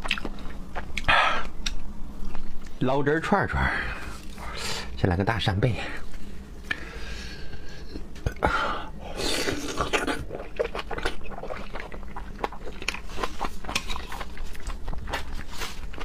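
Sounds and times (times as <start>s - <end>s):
chewing with wet mouth clicks: 0.0s - 2.8s, 9.8s - 16.0s.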